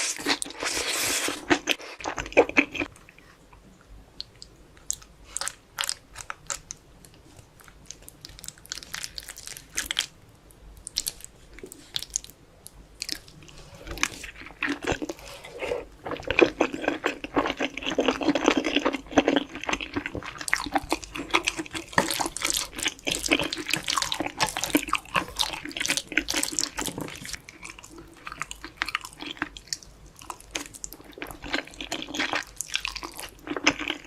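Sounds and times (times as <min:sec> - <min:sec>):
chewing noodles: 0:13.0 - 0:34.0.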